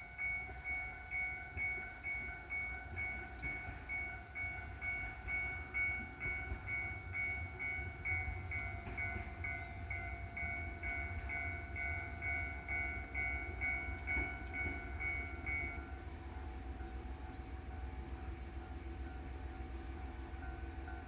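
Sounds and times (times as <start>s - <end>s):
high electronic bell tone: 0.0s - 16.1s
railcar engine rumble and whine: 0.0s - 21.0s.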